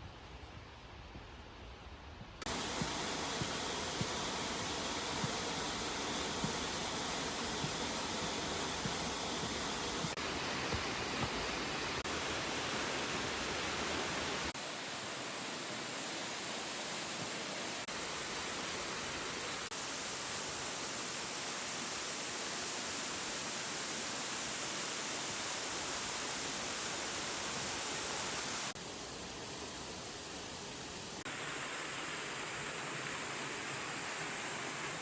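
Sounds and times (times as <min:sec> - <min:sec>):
waterfall rushing: 0:02.5 - 0:28.8, 0:31.2 - 0:35.0.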